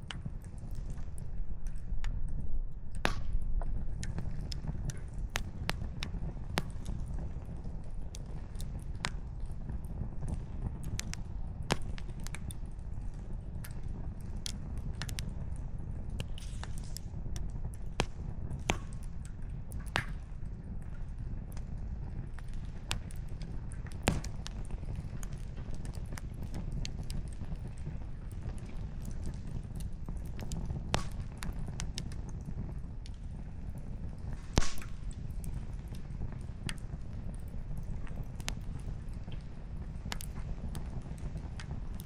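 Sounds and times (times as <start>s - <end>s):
campfire crackling: 2.8s - 42.0s
firewood popping and snapping: 2.9s - 15.4s, 16.1s - 20.3s, 22.4s - 42.0s.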